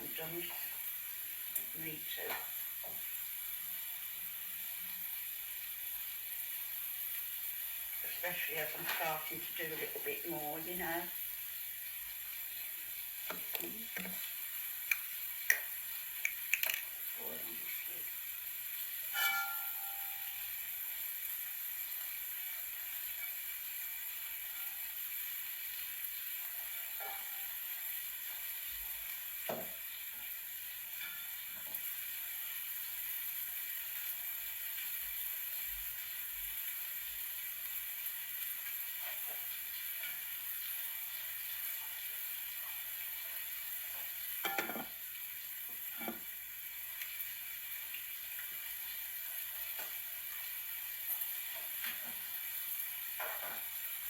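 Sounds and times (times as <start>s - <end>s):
food sizzling: 0.0s - 54.0s
ringing clink of crockery: 19.1s - 20.4s, 27.0s - 27.5s
utensils and dishes knocking: 44.4s - 44.9s.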